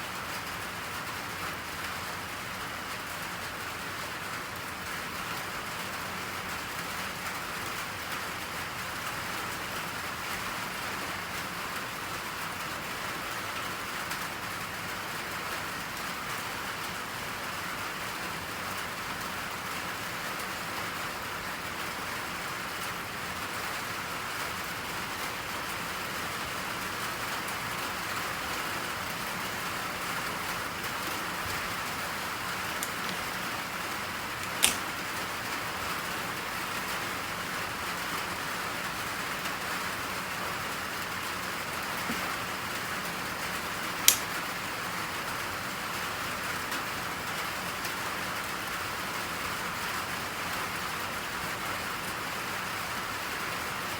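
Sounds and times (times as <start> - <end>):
steady rain falling: 0.0 - 53.9
sharp click: 32.7 - 33.3, 34.4 - 35.0, 44.0 - 44.3.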